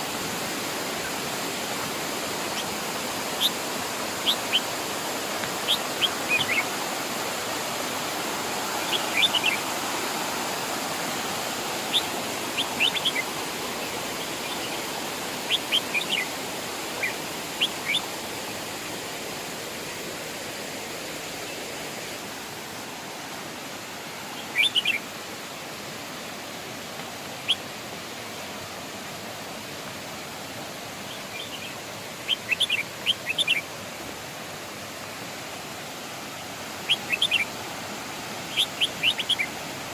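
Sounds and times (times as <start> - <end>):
waterfall rushing: 0.0 - 39.9
small bird chirping: 5.6 - 6.7, 36.9 - 37.5, 38.5 - 39.5.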